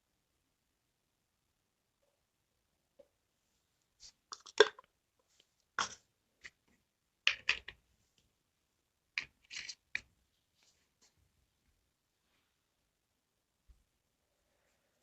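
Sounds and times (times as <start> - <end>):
containers knocking and rustling: 4.3 - 4.9, 7.3 - 7.8.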